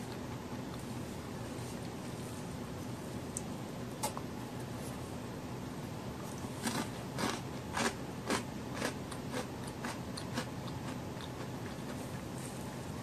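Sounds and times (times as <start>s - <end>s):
soft chewing: 0.0s - 5.1s, 6.2s - 13.0s
biscuit crunching: 6.2s - 12.3s.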